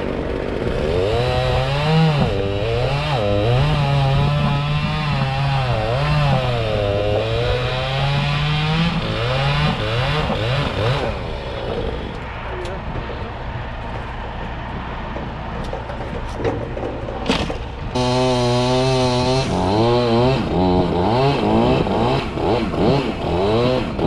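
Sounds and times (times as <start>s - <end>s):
chainsaw cutting: 0.0s - 12.3s, 17.9s - 24.0s.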